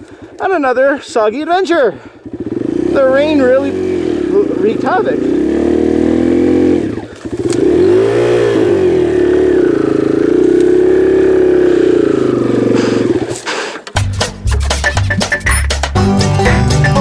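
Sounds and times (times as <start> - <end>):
motorcycle engine revving: 1.7 - 14.0
banjo music: 13.9 - 17.0.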